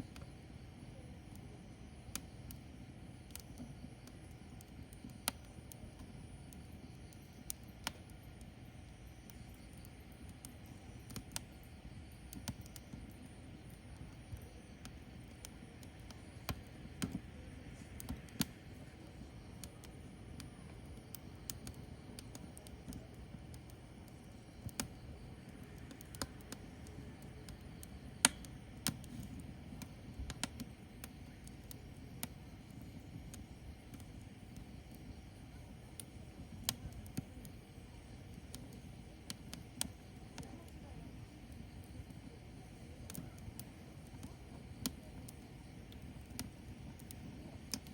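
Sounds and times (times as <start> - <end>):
firewood crackling and popping: 0.0 - 47.9
low rumble of fire: 0.0 - 47.9.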